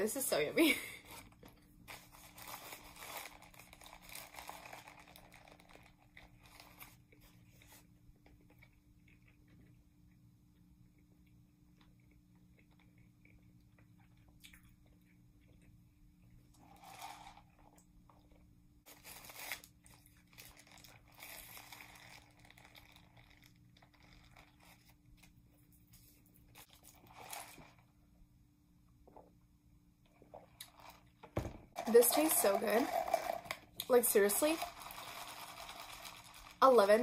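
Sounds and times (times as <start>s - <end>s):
low room hum: 0.0s - 37.0s
paper wrapper rustling: 1.9s - 7.0s, 18.9s - 25.0s, 34.4s - 37.0s.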